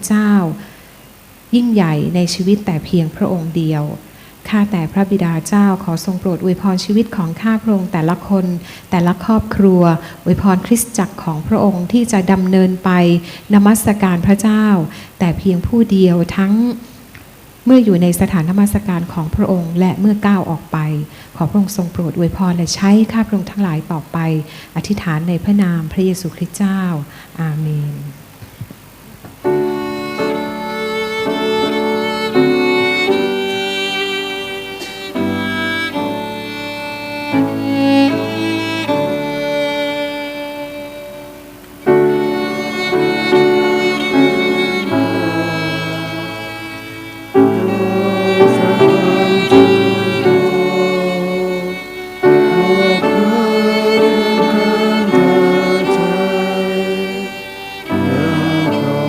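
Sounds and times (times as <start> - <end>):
slow instrumental music: 29.4 - 59.0
violin melody: 29.5 - 59.0
held chords: 41.8 - 55.0, 57.9 - 59.0.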